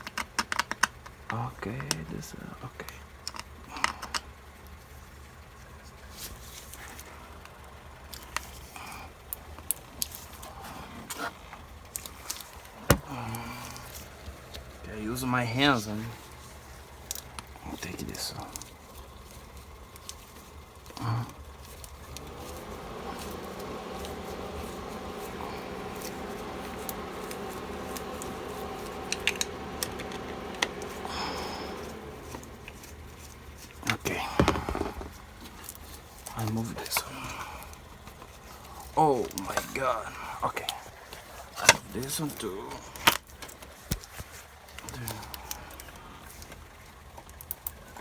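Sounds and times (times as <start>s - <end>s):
small parts clicking and tapping: 0.0s - 2.1s, 2.8s - 4.3s
steady background hum: 0.0s - 48.0s.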